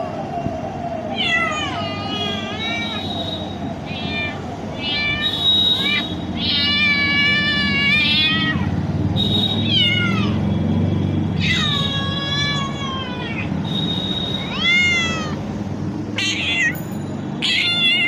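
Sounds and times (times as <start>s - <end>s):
cat meowing: 1.1s - 3.2s, 3.8s - 8.7s, 9.6s - 10.4s, 11.3s - 13.5s, 14.4s - 15.4s, 16.2s - 16.8s, 17.4s - 18.0s.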